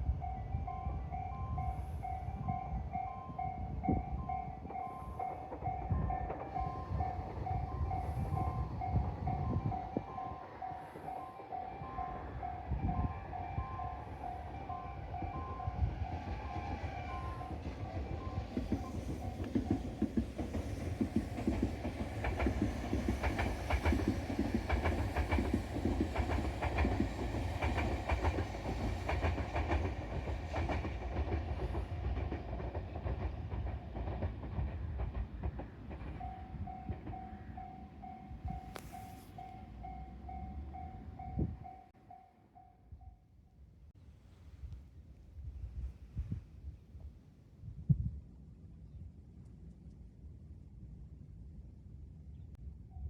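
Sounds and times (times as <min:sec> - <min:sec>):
electric train rumbling: 0:00.0 - 0:43.1
wheels clacking over rail joints: 0:13.9 - 0:41.0.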